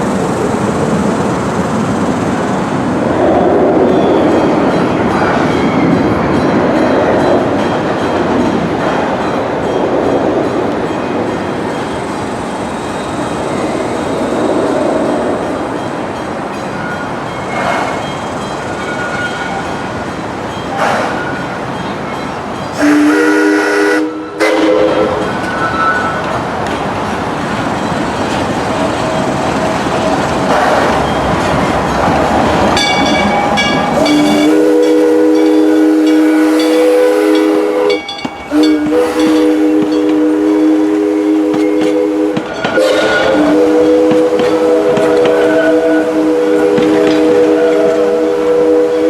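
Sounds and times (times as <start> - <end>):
steam hissing: 0.0 - 6.0, 11.2 - 49.0
train running noise: 0.0 - 49.0
steam locomotive chime whistle: 15.2 - 26.4, 30.6 - 49.0.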